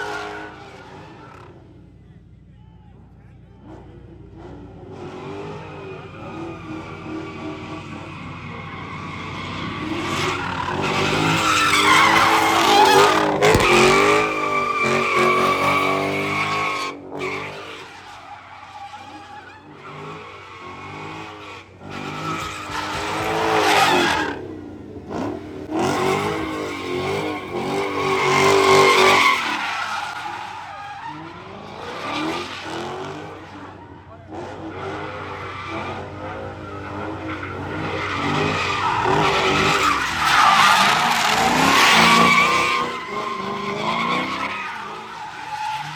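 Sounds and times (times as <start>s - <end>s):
car engine revving: 3.6s - 17.6s, 19.6s - 30.0s, 31.1s - 45.9s
tyres squealing: 6.2s - 20.6s, 33.6s - 45.9s.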